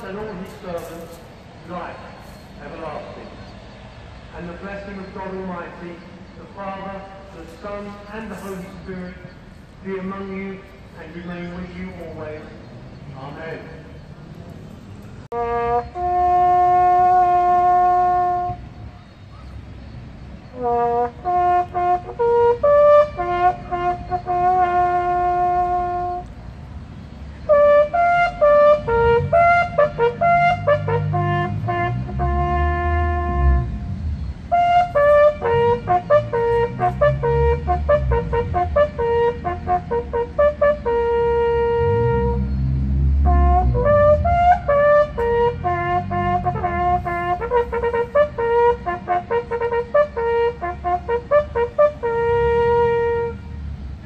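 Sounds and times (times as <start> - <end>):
brass band playing slow tune: 15.3 - 18.7, 20.5 - 26.3, 27.4 - 53.6.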